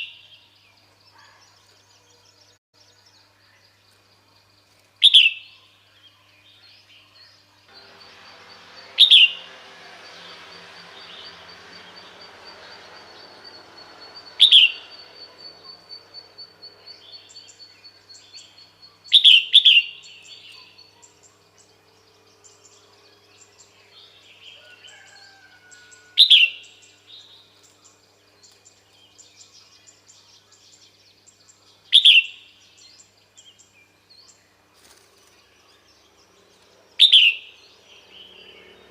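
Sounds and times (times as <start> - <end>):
bulbul sharp calls: 7.8 - 9.5, 11.0 - 21.3.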